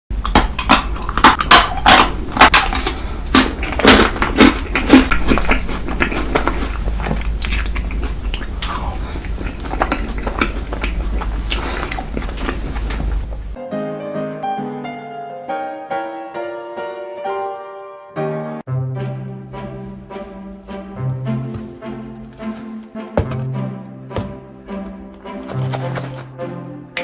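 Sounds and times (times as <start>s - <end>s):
chewing: 0.2s - 13.6s.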